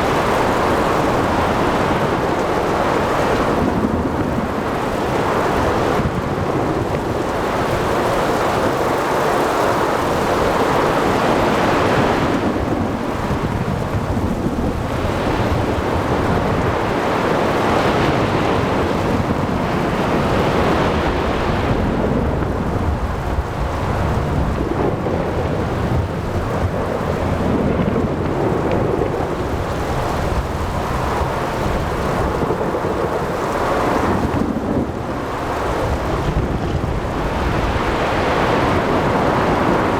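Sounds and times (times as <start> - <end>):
heavy rain: 0.0 - 39.9
wind: 0.0 - 39.9
low thunder rumbling: 12.6 - 39.9
sea waves crashing: 32.2 - 39.9.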